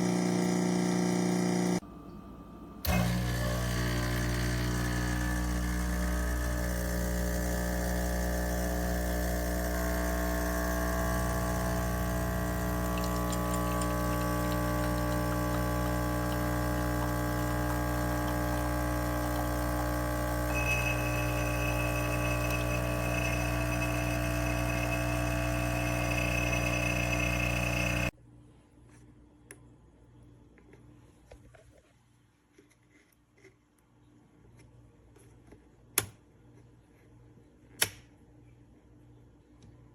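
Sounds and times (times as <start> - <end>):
espresso machine pump humming: 0.0 - 1.8, 2.6 - 28.2
thin high whine: 20.4 - 28.1.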